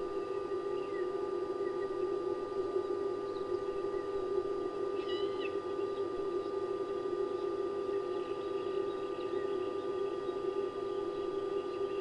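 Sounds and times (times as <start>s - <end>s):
steady low hum: 0.0s - 12.0s
thin steady tone: 0.0s - 12.0s.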